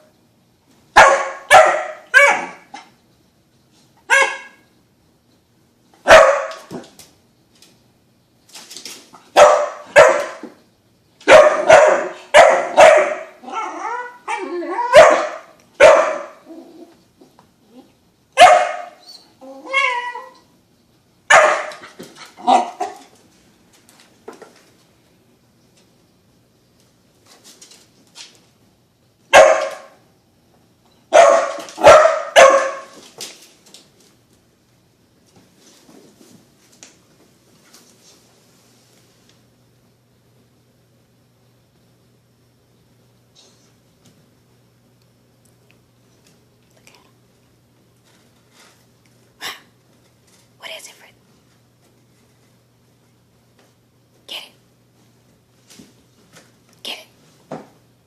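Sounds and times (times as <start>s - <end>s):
dog barking: 1.0s - 2.9s, 4.1s - 4.6s, 6.0s - 6.7s, 9.3s - 10.5s, 11.2s - 13.4s, 14.3s - 16.4s, 18.4s - 19.0s, 21.3s - 23.0s, 29.3s - 30.0s, 31.1s - 33.0s.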